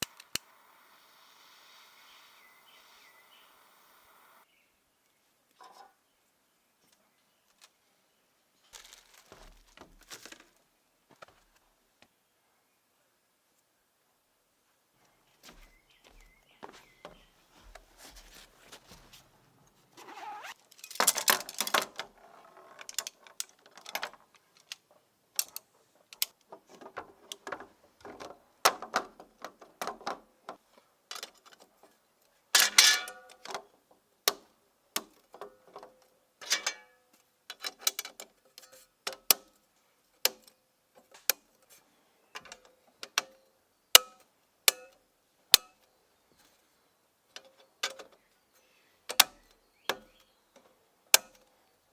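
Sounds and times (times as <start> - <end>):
rustling: 8.6 - 11.8, 15.0 - 24.7.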